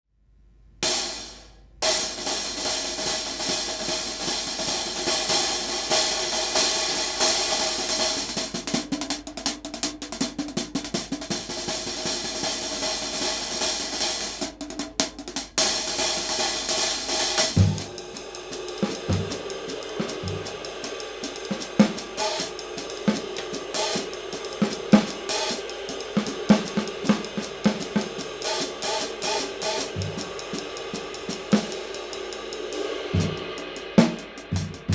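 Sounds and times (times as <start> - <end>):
hi-hat cymbals: 0.8 - 34.9
snare drum: 0.8 - 34.9
kick drum: 17.5 - 18.1, 18.8 - 20.7, 29.9 - 30.6, 33.2 - 34.9.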